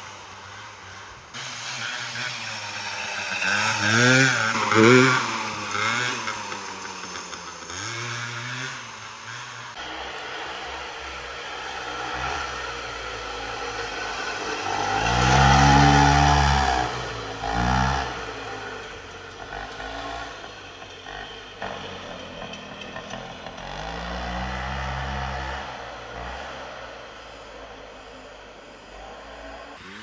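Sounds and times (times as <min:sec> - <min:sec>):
dirt bike engine revving: 0:00.0 - 0:10.4, 0:11.7 - 0:20.5, 0:29.8 - 0:30.0.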